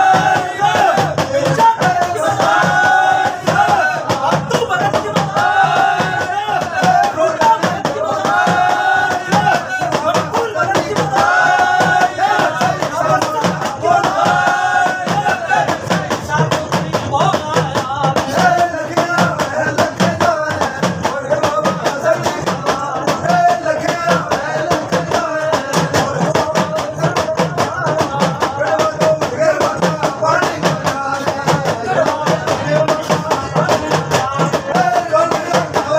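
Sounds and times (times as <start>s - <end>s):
fast percussion: 0.0s - 35.9s.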